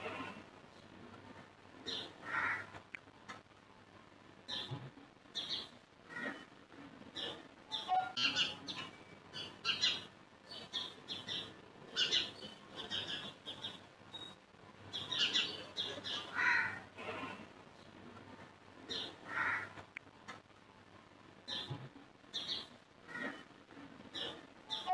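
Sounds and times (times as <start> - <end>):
birds chirping and calling: 1.8 - 2.5, 4.5 - 4.8, 7.1 - 16.7, 18.9 - 19.6, 21.5 - 23.4, 24.1 - 24.9.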